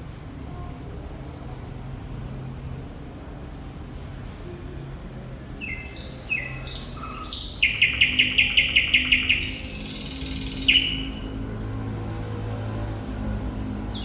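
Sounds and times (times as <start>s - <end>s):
thrush nightingale singing: 5.3s - 11.3s.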